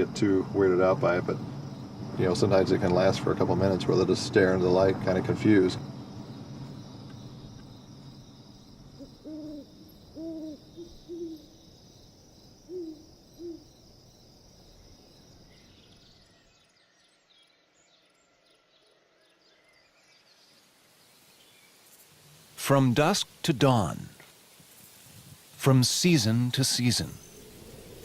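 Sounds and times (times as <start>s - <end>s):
night insects humming: 0.0s - 28.0s
owl hooting: 9.0s - 11.6s, 12.6s - 13.8s.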